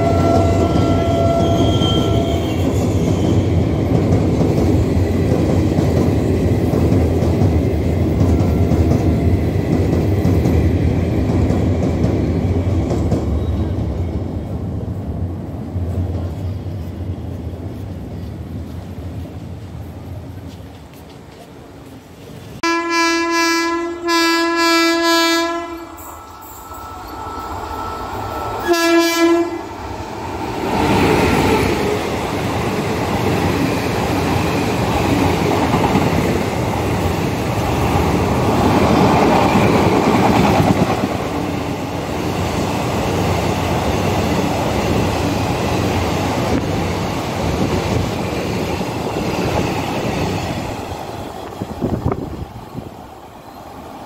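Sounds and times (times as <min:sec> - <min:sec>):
locomotive horn blasts: 0:00.0 - 0:02.6, 0:22.6 - 0:26.1, 0:28.6 - 0:29.8
train wheels rumbling on rail: 0:00.0 - 0:54.0.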